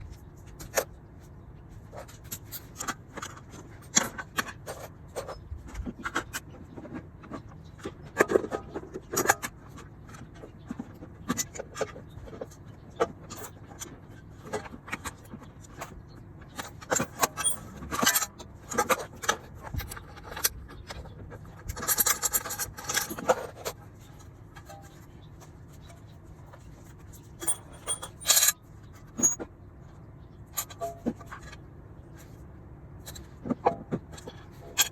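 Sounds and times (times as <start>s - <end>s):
metal tools clinking and scraping: 11.5s - 29.5s, 30.5s - 31.6s, 33.0s - 34.9s.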